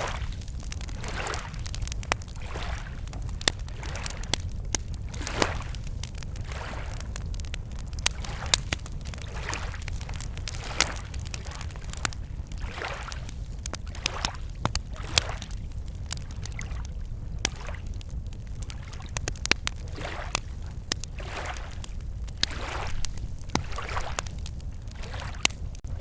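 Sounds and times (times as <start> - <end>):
small waves lapping shore: 0.0 - 1.8, 2.4 - 3.0, 5.1 - 5.8, 6.4 - 7.0, 8.1 - 15.6, 19.8 - 20.6, 21.2 - 24.3, 25.0 - 25.4
campfire crackling and popping: 0.0 - 26.0.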